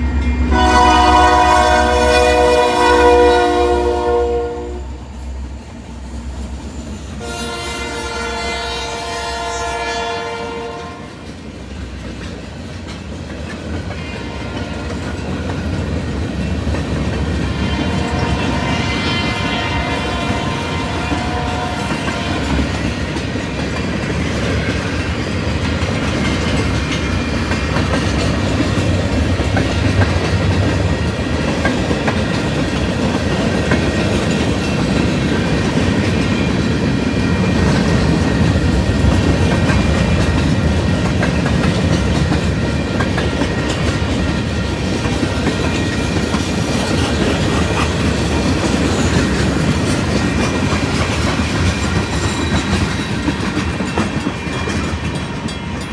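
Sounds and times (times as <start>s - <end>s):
train wheels clacking over rail joints: 11.2s - 55.9s.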